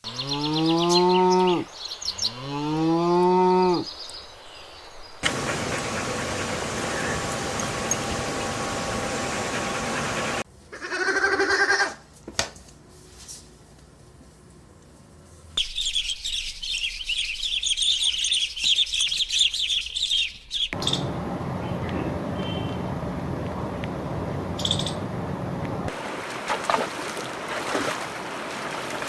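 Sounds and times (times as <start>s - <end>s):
flock of birds chirping: 0.0s - 2.4s, 3.7s - 10.4s, 15.6s - 23.0s
pitched animal call: 10.7s - 12.0s.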